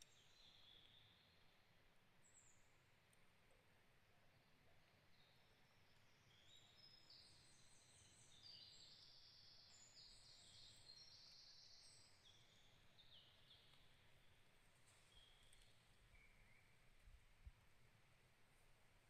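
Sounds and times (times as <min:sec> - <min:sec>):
faint birdsong: 0:00.0 - 0:19.0
forest ambience hiss: 0:05.1 - 0:19.0.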